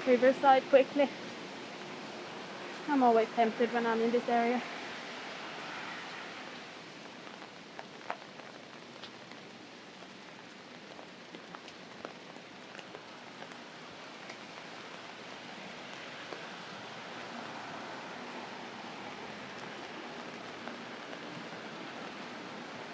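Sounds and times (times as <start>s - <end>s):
rain falling on an umbrella: 0.0s - 22.9s.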